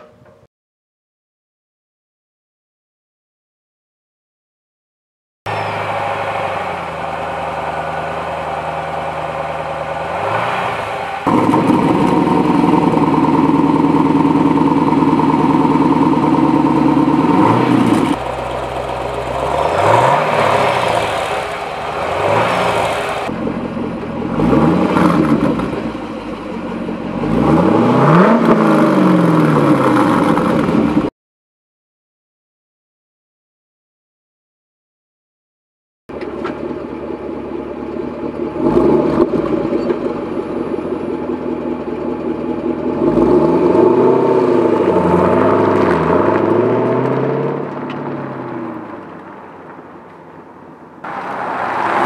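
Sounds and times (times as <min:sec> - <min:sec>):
car exhaust idling and revving: 0:05.5 - 0:31.1, 0:36.1 - 0:52.0.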